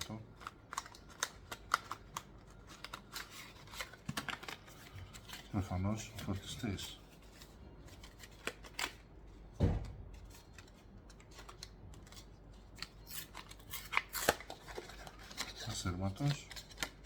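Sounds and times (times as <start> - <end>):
packaging clicks and rustles: 0.0 - 9.0, 10.1 - 17.0
dull thump: 9.6 - 10.0.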